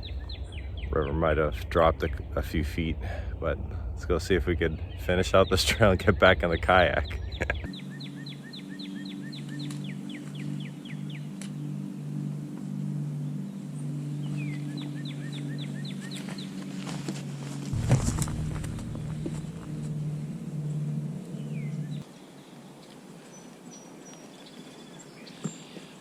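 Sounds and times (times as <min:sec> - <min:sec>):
low rumble: 0:00.0 - 0:07.7, 0:17.7 - 0:22.0
low steady hum of held tones: 0:00.0 - 0:22.1
bird calling: 0:06.9 - 0:11.3.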